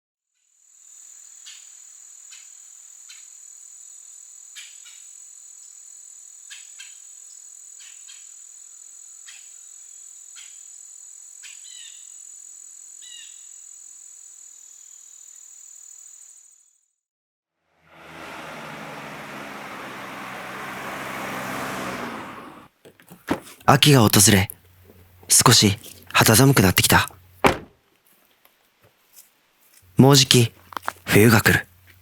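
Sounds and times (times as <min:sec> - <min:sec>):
insects trilling: 0:00.6 - 0:16.8.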